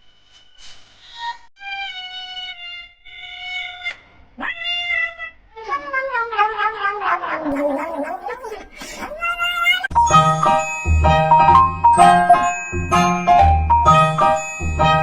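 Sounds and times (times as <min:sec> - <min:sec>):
cat meowing: 0:02.0 - 0:10.0.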